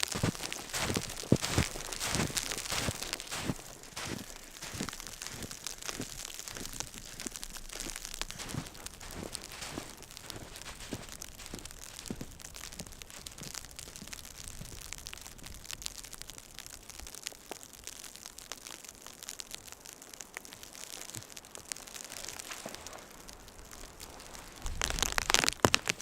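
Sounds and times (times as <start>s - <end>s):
footsteps crunching through snow: 0.0s - 15.6s, 22.0s - 26.0s
steady hiss with small ticks: 0.0s - 26.0s.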